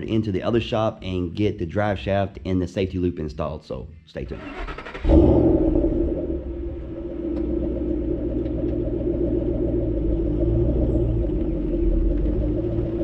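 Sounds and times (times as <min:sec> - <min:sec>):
car engine idling: 0:04.5 - 0:13.0.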